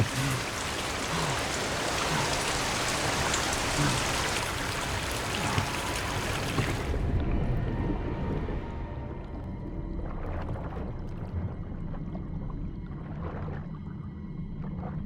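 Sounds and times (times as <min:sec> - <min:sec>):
heavy rain hiss: 0:00.0 - 0:07.0.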